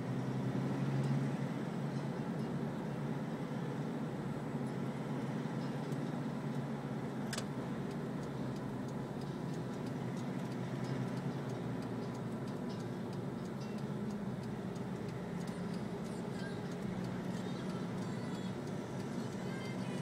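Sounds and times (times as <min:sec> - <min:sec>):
vehicle engine and road noise: 0:00.0 - 0:20.0
faint regular ticking: 0:07.3 - 0:20.0.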